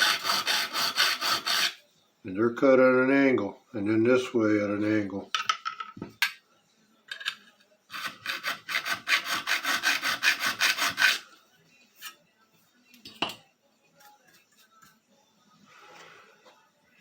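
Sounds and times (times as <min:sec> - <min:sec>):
file rasping on steel: 0:00.0 - 0:01.8, 0:07.9 - 0:11.3.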